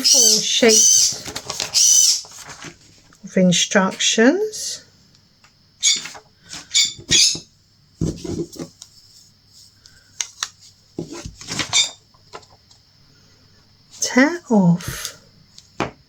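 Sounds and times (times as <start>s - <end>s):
packaging rustling: 1.1s - 3.2s.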